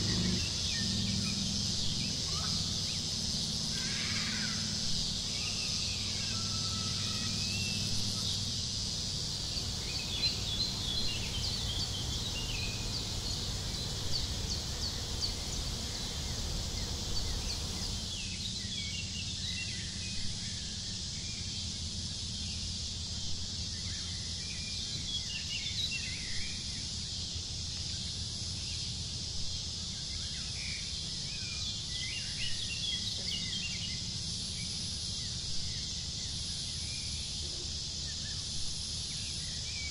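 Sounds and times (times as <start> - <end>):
small birds chirping: 0.0 - 21.6, 29.8 - 39.9
steady background hiss and rumble: 0.0 - 39.9.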